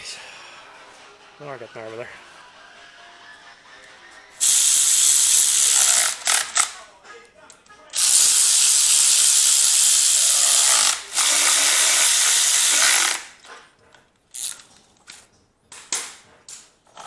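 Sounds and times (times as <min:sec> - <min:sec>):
power ratchet running: 0:04.4 - 0:06.7, 0:08.0 - 0:13.3, 0:14.4 - 0:14.6.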